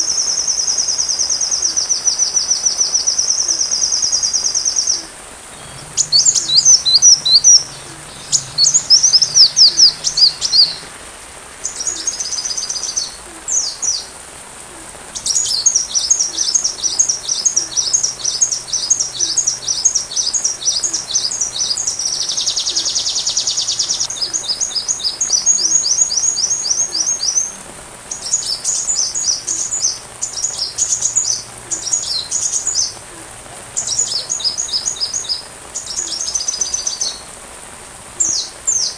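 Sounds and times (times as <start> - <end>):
faint steady hiss: 0.0 - 38.9
bird chirping: 5.5 - 11.0.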